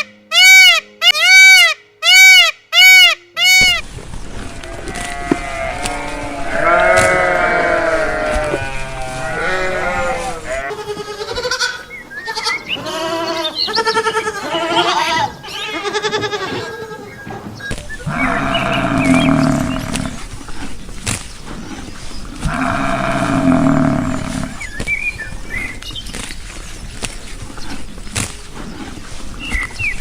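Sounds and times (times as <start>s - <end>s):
farm animals bleating: 4.4s - 20.3s, 22.4s - 24.8s
long loud animal calls: 18.0s - 20.3s, 22.4s - 24.7s.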